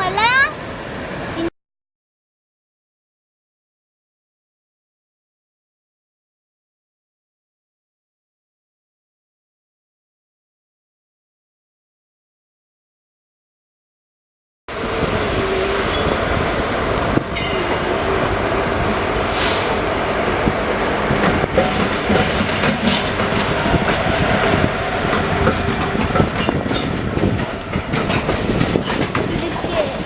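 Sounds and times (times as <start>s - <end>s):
train coaches rumbling: 0.0s - 1.5s, 14.7s - 30.0s
wheel clicks over rail joints: 21.2s - 24.2s, 25.1s - 30.0s.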